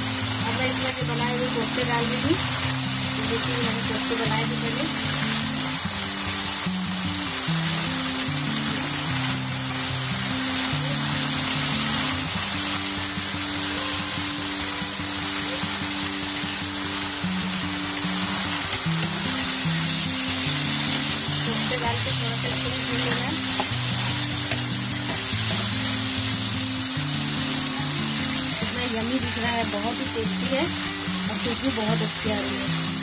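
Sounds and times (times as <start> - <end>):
background music with low notes: 0.0 - 33.0
gravy sizzling in a frying pan: 0.0 - 33.0
spatula stirring in a pan: 18.2 - 26.4.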